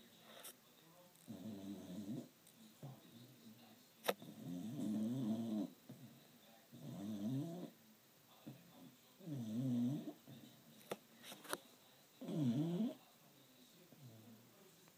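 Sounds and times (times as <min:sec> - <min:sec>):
dog snoring: 0:01.3 - 0:02.3, 0:04.1 - 0:05.8, 0:06.7 - 0:07.8, 0:09.2 - 0:10.3, 0:12.2 - 0:13.0.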